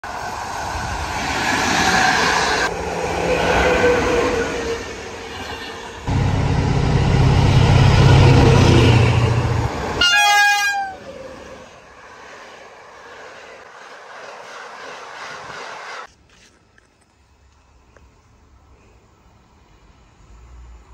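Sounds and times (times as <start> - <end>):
electric locomotive passing: 0.0 - 16.1
rail rumble: 0.0 - 16.1
diesel locomotive engine humming: 6.0 - 16.1
train horn blast: 7.0 - 11.1.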